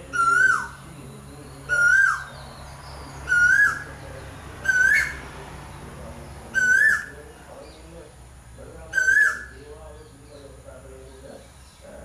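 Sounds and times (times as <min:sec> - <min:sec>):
bird whistling: 0:00.0 - 0:00.8, 0:01.7 - 0:02.4, 0:03.2 - 0:04.0, 0:04.6 - 0:05.2, 0:06.5 - 0:07.1, 0:08.9 - 0:09.6.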